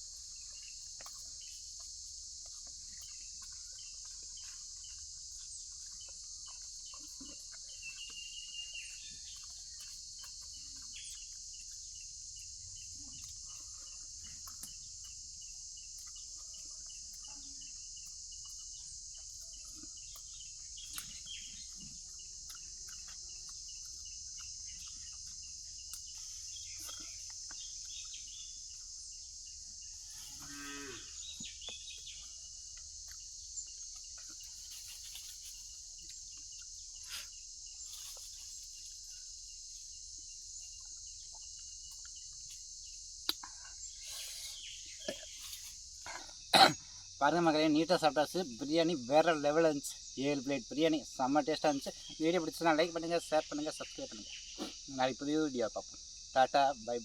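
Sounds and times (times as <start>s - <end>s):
insects droning: 0.0s - 57.0s
bird chirps: 6.0s - 11.4s, 16.0s - 28.8s, 29.8s - 33.8s.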